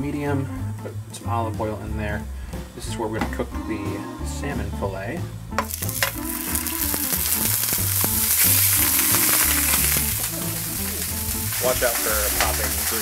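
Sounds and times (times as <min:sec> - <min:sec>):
background music with bass: 0:00.0 - 0:13.0
fish sizzling in oil: 0:05.6 - 0:13.0.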